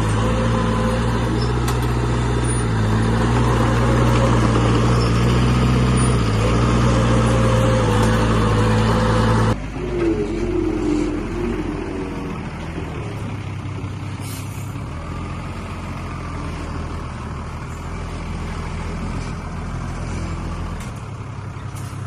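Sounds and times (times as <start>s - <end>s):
heavy diesel engine running: 0.0s - 22.0s.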